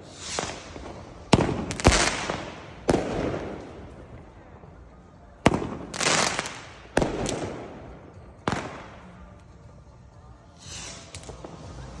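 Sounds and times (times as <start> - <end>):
firework hiss: 0.0 - 3.8, 5.9 - 7.4, 10.6 - 12.0
firework bangs with echo: 0.0 - 4.4, 5.4 - 9.4.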